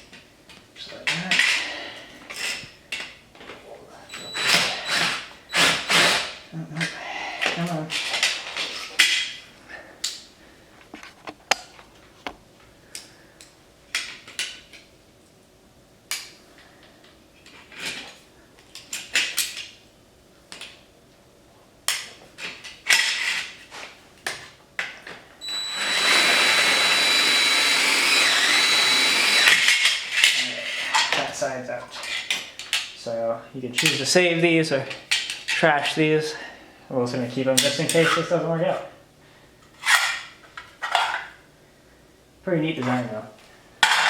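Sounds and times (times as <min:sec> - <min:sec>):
cordless drill whining: 0:04.1 - 0:06.4, 0:25.4 - 0:29.7.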